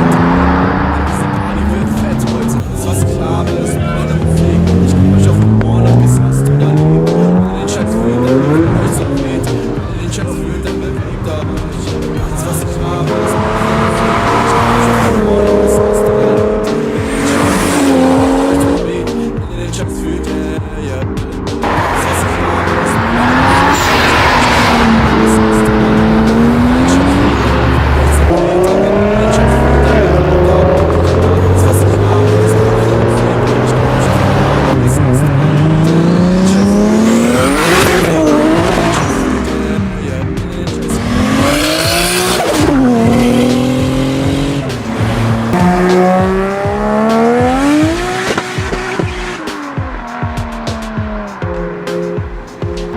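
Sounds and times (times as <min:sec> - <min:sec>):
car engine accelerating hard: 0:00.0 - 0:19.2, 0:21.5 - 0:52.9.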